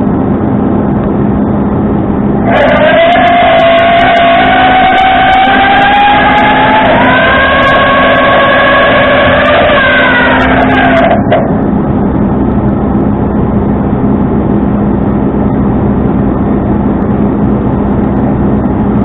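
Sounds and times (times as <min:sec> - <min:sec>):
tow truck engine droning: 0:00.0 - 0:19.0
whining tone dropping in pitch: 0:02.4 - 0:12.5.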